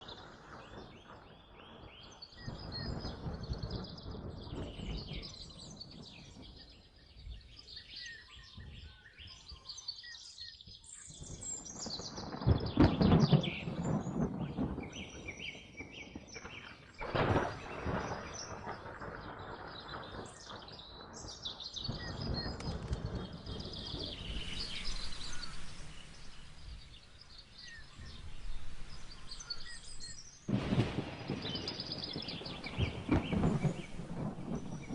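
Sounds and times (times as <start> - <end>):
sharp thunder clap: 0.0 - 6.4, 12.0 - 34.9
thunder rumbling: 0.0 - 6.9, 11.2 - 34.9
steady rain: 0.0 - 8.8, 11.1 - 34.9
birds chirping and singing: 0.1 - 34.9.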